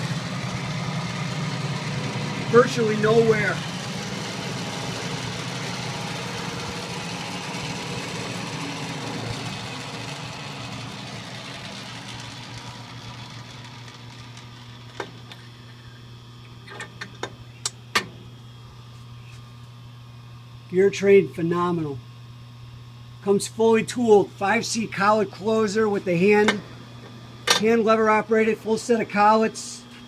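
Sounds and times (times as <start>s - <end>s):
metal lathe running: 0.0s - 16.0s
phase converter hum: 0.0s - 30.0s.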